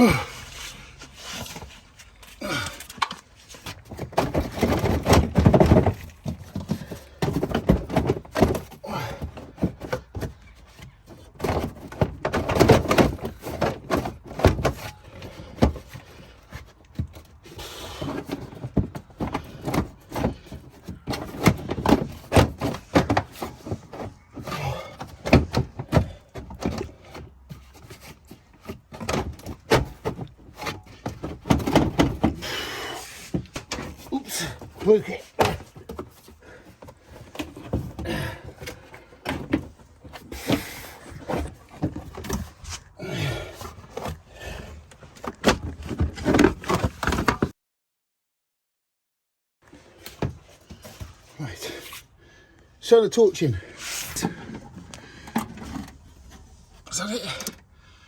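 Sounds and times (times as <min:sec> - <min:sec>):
plastic liner knocking and scraping: 0:03.0 - 0:32.6, 0:33.2 - 0:47.5.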